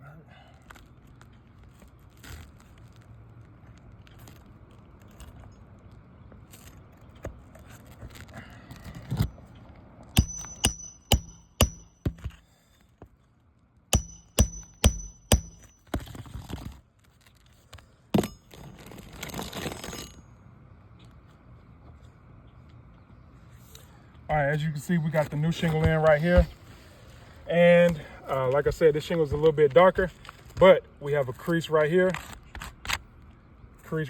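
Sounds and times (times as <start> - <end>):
hammer striking nails: 10.2 - 12.4, 14.0 - 15.8, 18.2 - 18.4.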